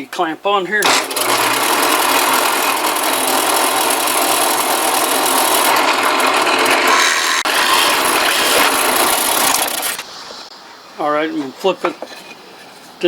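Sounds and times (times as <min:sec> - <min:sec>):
drill press boring into wood: 0:00.8 - 0:10.0
motor hum: 0:00.8 - 0:10.0.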